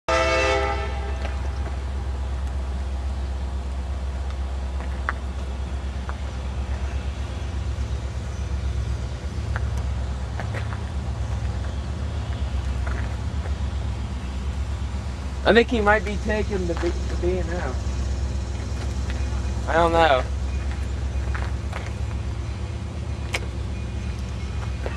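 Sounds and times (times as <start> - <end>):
train air horn blast: 0.1 - 1.6
diesel locomotive engine rumbling: 0.1 - 24.9.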